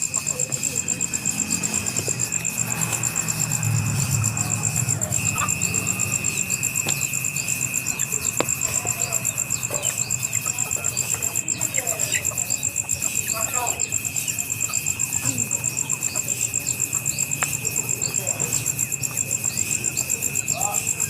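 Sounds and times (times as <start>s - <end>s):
insects trilling: 0.0s - 21.0s
faint chirps and clicks: 5.2s - 13.3s, 14.7s - 18.7s.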